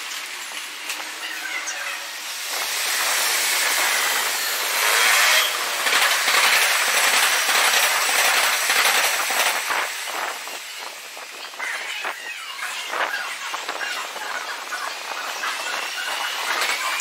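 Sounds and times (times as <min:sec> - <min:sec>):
train wheels rattling on rail: 0:02.4 - 0:11.1.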